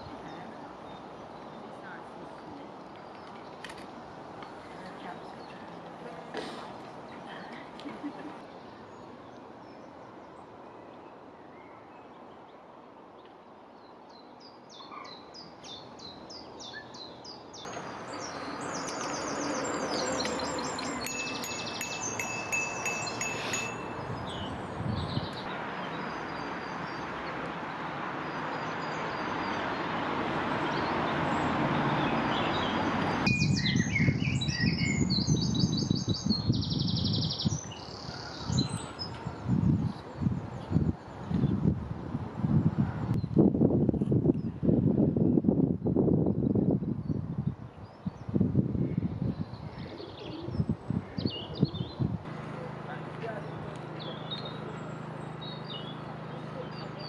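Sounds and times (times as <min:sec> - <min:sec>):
songbirds singing: 0:00.0 - 0:44.6, 0:45.3 - 0:57.0.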